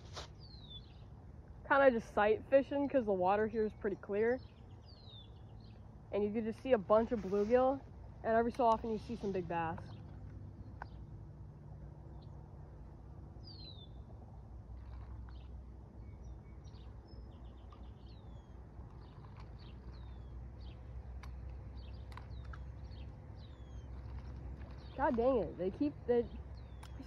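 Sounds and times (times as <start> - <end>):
low outdoor rumble: 0.0 - 27.0
small birds chirping: 0.2 - 1.2, 3.6 - 7.6, 13.4 - 14.1, 14.8 - 27.0.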